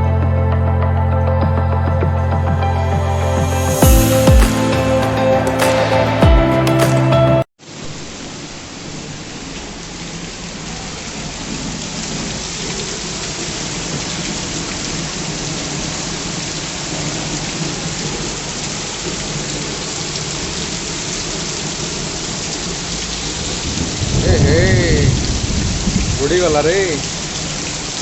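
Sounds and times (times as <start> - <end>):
rain falling: 7.6 - 28.0.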